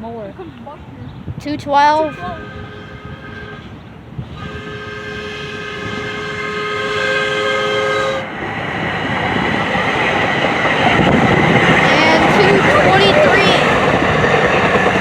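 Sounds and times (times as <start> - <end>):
train horn chord: 1.9 - 8.3
train wheels rushing on rails: 2.7 - 15.0.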